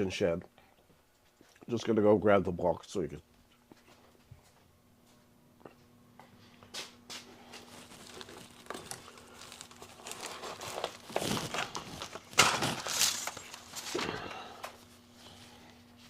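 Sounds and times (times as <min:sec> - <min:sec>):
packaging rustling and crinkling: 0:07.4 - 0:14.8.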